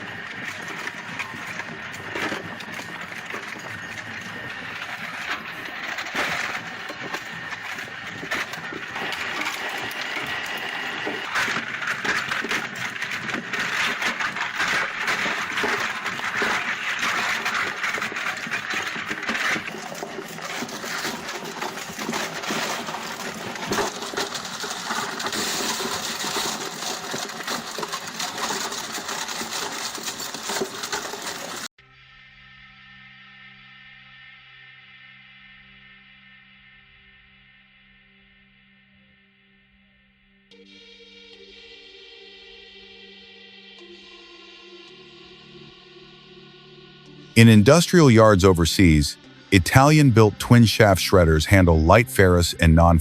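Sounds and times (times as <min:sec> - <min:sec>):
industrial shredder crackling: 0:00.0 - 0:31.7.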